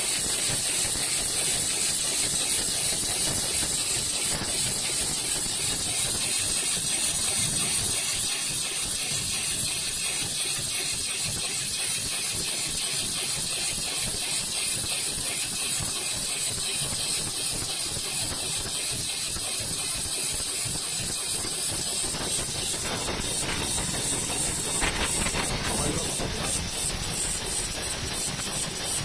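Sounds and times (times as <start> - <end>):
steady hiss: 21.3 - 29.0.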